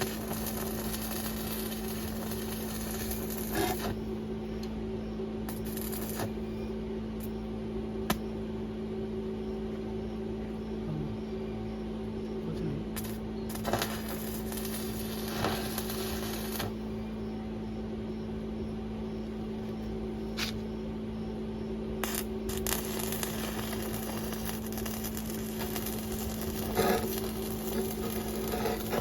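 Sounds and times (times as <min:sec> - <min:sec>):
machine hum: 0:00.0 - 0:29.0.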